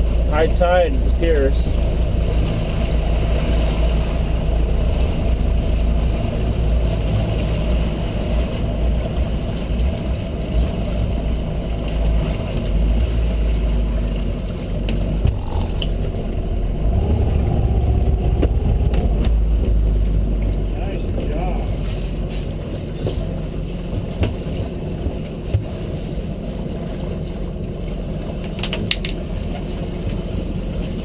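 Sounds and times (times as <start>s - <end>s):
boat motor rumbling: 0.0s - 31.0s
water noise: 0.0s - 31.0s
wind: 0.0s - 31.0s.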